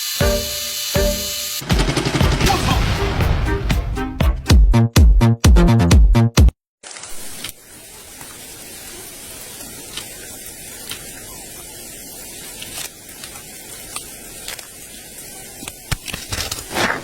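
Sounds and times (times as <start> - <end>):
steady hissing noise: 0.0 - 1.7, 7.1 - 17.0.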